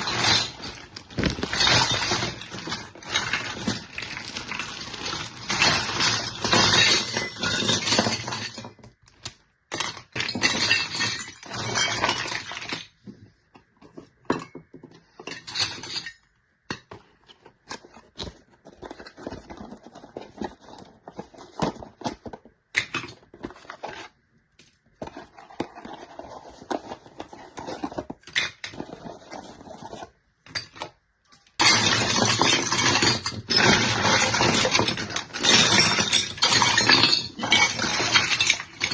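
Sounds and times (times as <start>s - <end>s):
plastic packaging crinkling: 0.0s - 6.4s
small toy pieces clinking: 0.0s - 8.8s, 31.6s - 38.9s.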